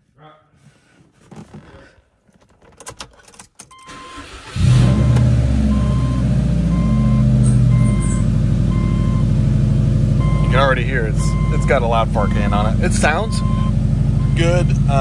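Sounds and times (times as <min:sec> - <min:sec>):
ignition clicks: 0:02.3 - 0:05.5
starter motor cranking: 0:03.8 - 0:05.4
car engine loud idle: 0:04.5 - 0:15.0.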